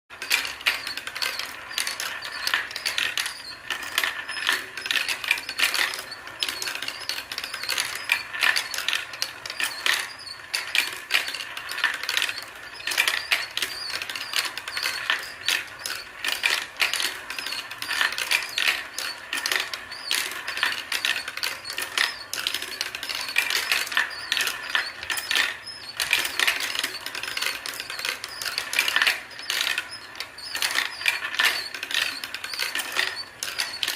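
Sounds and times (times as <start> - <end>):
marbles rolling and clacking: 0.1 - 33.9.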